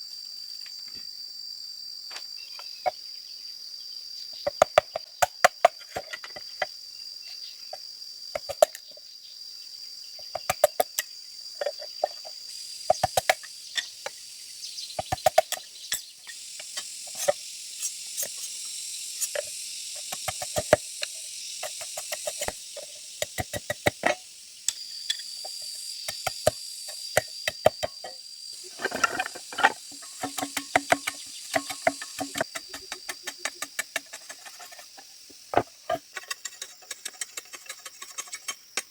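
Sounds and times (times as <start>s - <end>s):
insects buzzing: 0.0s - 38.9s
tool knocking on hollow bamboo: 4.5s - 6.4s, 12.9s - 13.5s, 15.0s - 15.7s, 19.4s - 20.9s, 21.6s - 24.2s, 25.4s - 28.2s, 28.8s - 38.9s.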